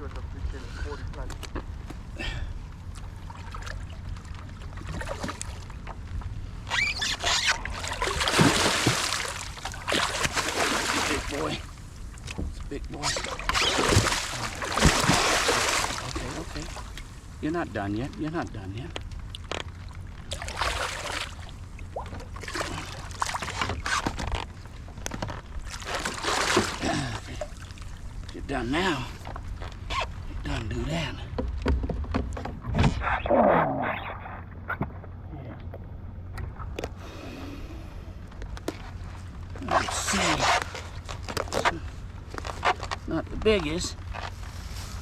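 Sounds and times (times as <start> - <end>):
steady low rumble: 0.0 - 6.8, 7.6 - 23.6, 24.2 - 45.0
water splashing around a kayak: 2.6 - 30.3
small knocks: 31.3 - 32.8.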